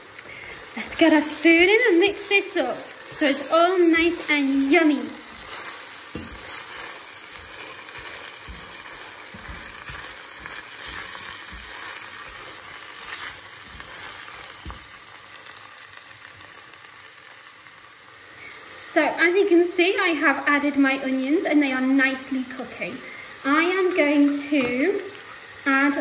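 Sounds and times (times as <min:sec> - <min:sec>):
onions sizzling in hot oil: 0:00.0 - 0:26.0
spoon knocking against pan: 0:06.1 - 0:06.6.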